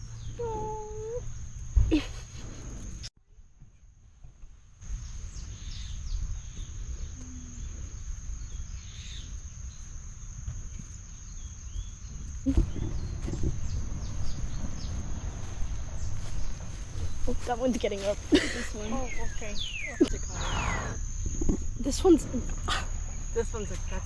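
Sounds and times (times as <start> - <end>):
birds chirping: 4.9 - 24.0
low rumble: 12.0 - 24.0.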